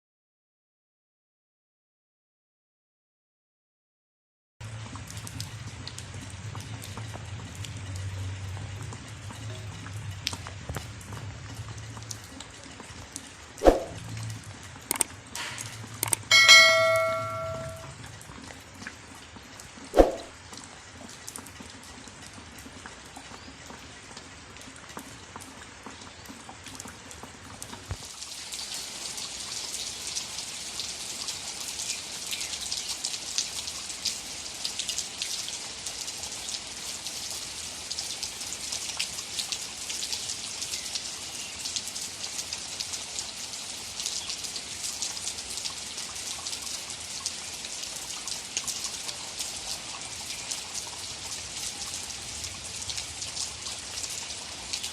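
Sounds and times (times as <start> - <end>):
rain pattering: 4.6 - 54.9
click: 14.9 - 15.1.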